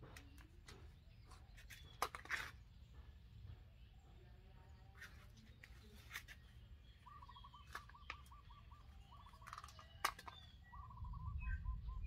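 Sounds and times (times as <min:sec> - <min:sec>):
bird warbling: 0:07.0 - 0:12.0
hands clicking in soil: 0:09.1 - 0:10.6.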